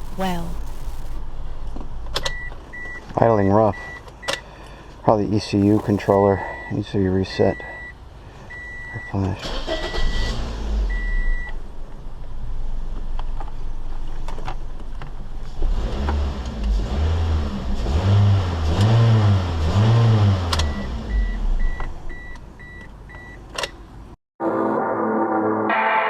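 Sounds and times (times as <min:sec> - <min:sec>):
car electronic chime beeping: 0:05.6 - 0:06.8.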